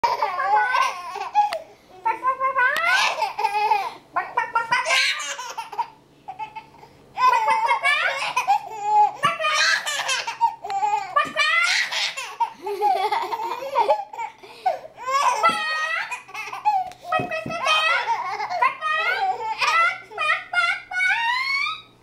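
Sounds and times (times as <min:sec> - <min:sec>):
baby laughing: 0:00.0 - 0:01.7, 0:02.9 - 0:21.9.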